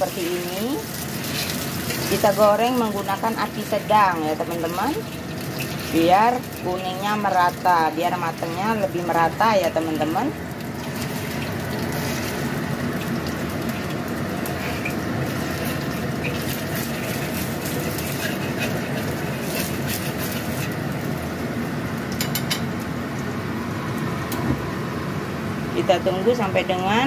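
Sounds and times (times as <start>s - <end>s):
fish paste sizzling in oil: 0.0s - 22.2s
clicks and crackles: 15.6s - 20.8s.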